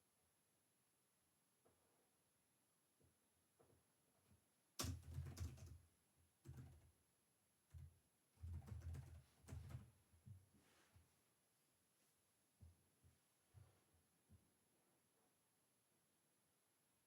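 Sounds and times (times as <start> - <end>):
typing on computer keyboard: 4.8 - 5.8, 6.4 - 7.0, 7.7 - 9.9.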